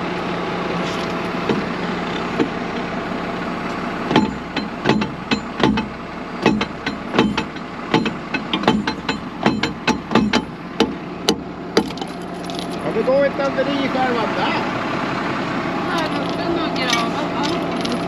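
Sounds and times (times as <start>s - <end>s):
tractor engine idling: 0.0s - 18.0s
hammer knocking on metal: 4.1s - 12.0s.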